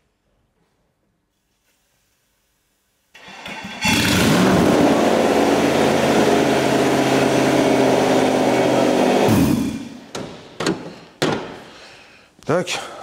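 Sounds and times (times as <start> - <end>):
car engine cranking and running: 3.2 - 9.9.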